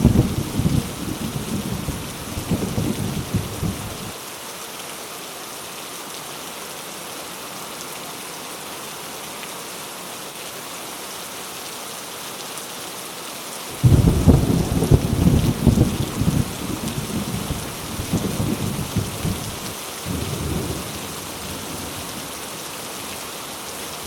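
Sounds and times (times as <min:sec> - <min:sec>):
thunder rumbling: 0:00.0 - 0:04.1, 0:13.8 - 0:22.1
heavy rain: 0:00.0 - 0:24.0.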